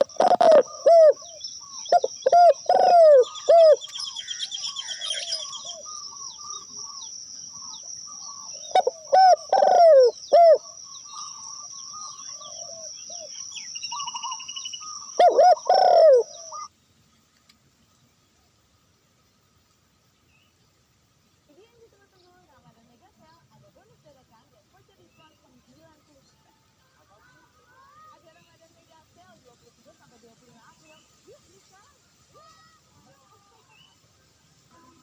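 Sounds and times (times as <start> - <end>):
doves cooing: 0.0 - 16.7
small birds chirping: 0.0 - 35.0.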